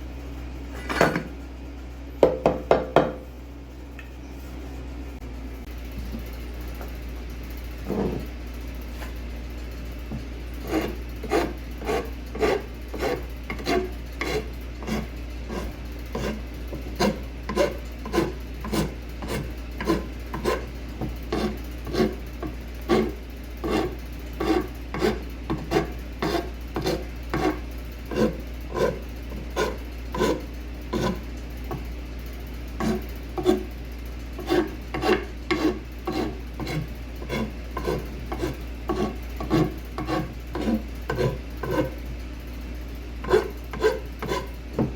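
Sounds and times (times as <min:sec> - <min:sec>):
hand tool scraping wood: 0:10.6 - 0:31.8, 0:32.8 - 0:33.7, 0:34.4 - 0:42.0, 0:43.2 - 0:44.9.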